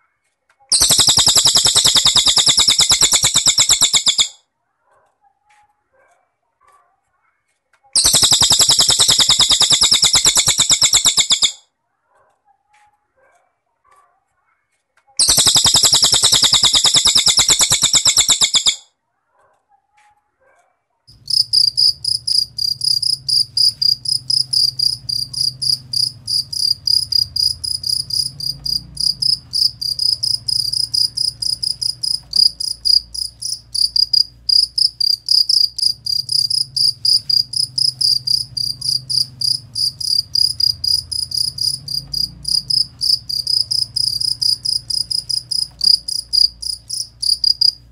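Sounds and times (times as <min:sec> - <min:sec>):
insect buzzy trill: 0:00.7 - 0:04.3, 0:08.0 - 0:11.6, 0:15.2 - 0:18.8, 0:21.1 - 0:47.9
cricket chirping: 0:00.7 - 0:04.4, 0:08.0 - 0:11.6, 0:15.2 - 0:18.8, 0:21.1 - 0:47.9
low hum: 0:21.1 - 0:47.9.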